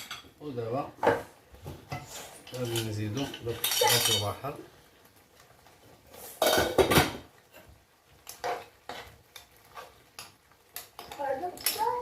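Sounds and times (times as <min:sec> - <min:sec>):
metal utensil scraping a pot: 0:01.9 - 0:04.3.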